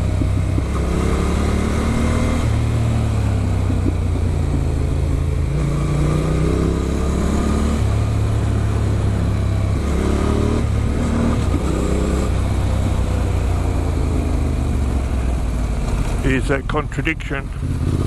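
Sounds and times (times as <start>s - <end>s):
wind noise: 0.0s - 8.2s
motorcycle engine accelerating: 0.0s - 18.0s.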